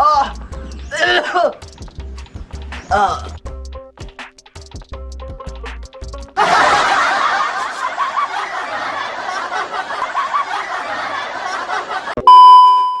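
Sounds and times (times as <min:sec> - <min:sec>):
many people laughing: 0:06.4 - 0:12.2
steady high beep: 0:12.2 - 0:13.0.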